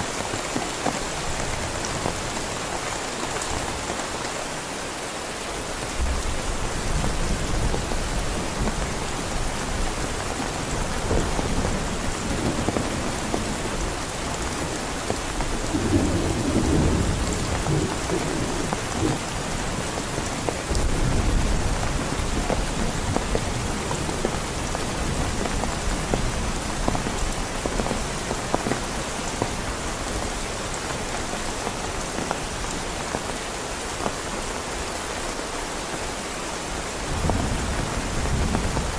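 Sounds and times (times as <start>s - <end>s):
heavy rain falling: 0.0s - 38.9s
thunder rumbling: 6.0s - 28.0s.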